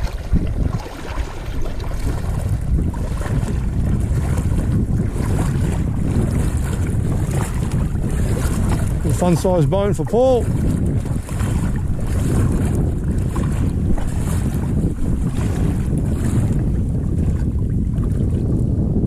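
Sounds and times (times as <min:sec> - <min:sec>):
water noise: 0:00.0 - 0:19.0
wind buffeting microphone: 0:00.0 - 0:19.0.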